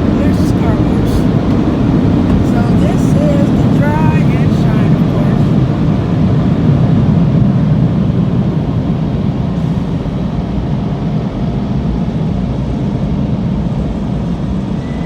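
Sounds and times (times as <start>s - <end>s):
air dryer blowers rushing: 0.0s - 6.1s.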